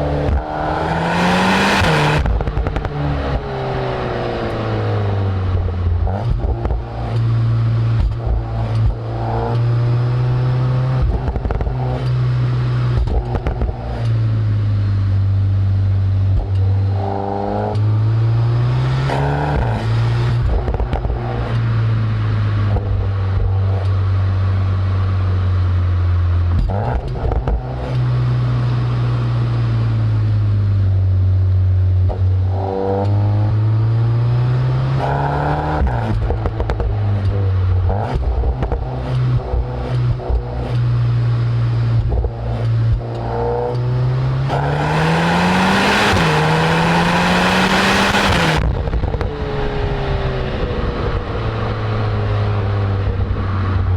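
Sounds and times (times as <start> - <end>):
car engine revving: 0.0 - 53.9
exhaust cracks and pops: 2.1 - 3.0, 5.6 - 9.8, 11.0 - 12.2, 12.9 - 14.3, 19.6 - 21.8, 26.4 - 28.0, 35.8 - 43.9, 48.3 - 49.5.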